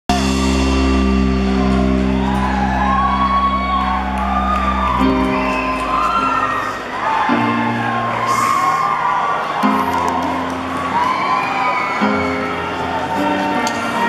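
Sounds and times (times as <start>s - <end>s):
live rock band playing: 0.1s - 8.8s
audience whooping and shouting: 0.1s - 14.0s.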